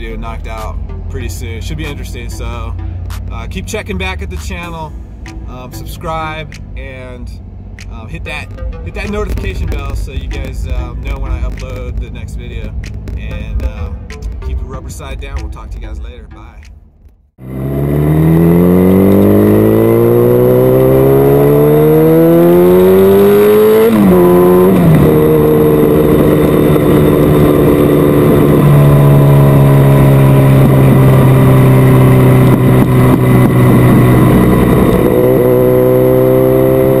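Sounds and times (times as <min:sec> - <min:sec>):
motorbike engine revving: 0:17.4 - 0:37.0.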